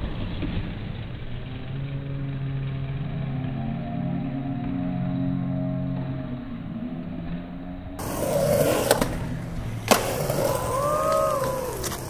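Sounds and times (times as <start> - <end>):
skateboard rolling on concrete: 0.0 - 1.4, 8.0 - 12.0
skateboard clacking on ground: 8.0 - 12.0.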